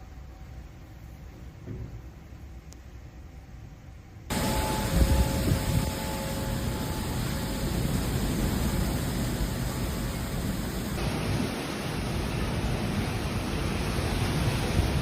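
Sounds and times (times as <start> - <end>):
wind and rain on microphone: 4.3 - 15.0.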